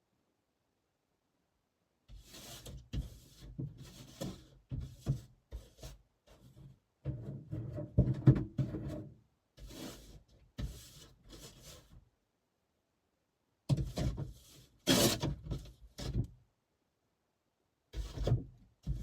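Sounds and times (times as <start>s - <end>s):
rubbing and knocking handling noise: 2.1s - 12.0s.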